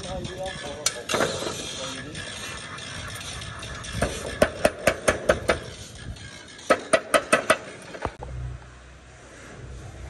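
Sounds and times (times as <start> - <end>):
hammer blows ringing: 0.0 - 7.8.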